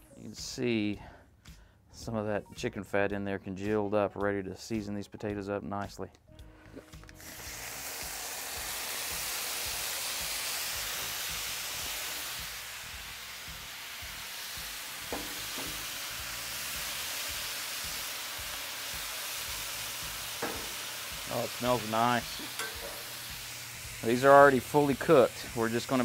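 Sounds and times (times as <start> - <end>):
potatoes sizzling on griddle: 7.2 - 26.0.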